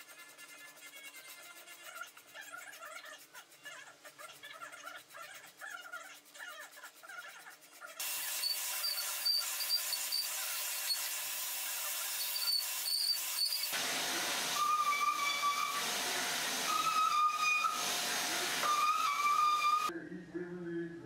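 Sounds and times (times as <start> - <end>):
gas torch hissing: 8.0 - 19.9.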